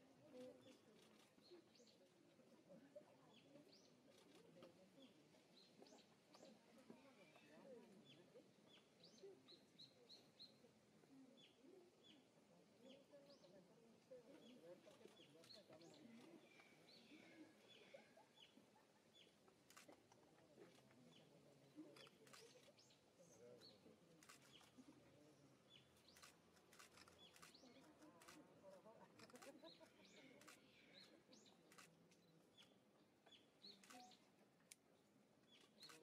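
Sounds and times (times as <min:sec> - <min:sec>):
low background murmur: 0:00.0 - 0:36.0
faint bird chirps: 0:00.3 - 0:20.0, 0:20.6 - 0:34.4.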